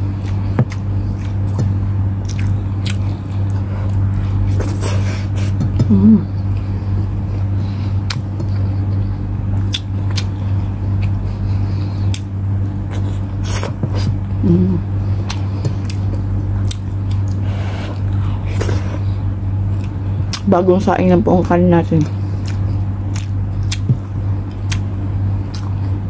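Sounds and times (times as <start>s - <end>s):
steady low hum: 0.0s - 26.0s
wet chewing and mouth clicks: 0.2s - 4.8s, 9.5s - 10.3s, 12.0s - 14.2s, 15.2s - 18.8s, 19.7s - 20.5s, 22.0s - 26.0s.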